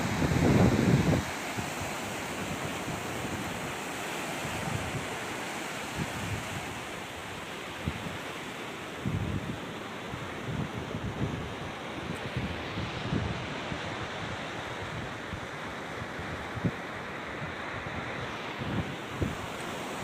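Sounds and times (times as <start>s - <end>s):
wind buffeting microphone: 0.0s - 3.8s, 9.0s - 16.9s
surf on rocky shore: 0.0s - 20.0s.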